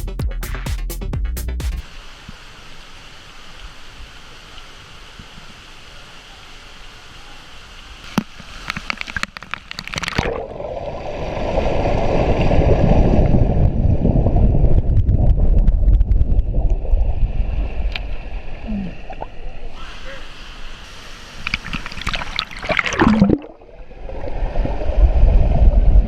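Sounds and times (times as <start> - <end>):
waterfall splashing and rushing: 1.8 - 9.3.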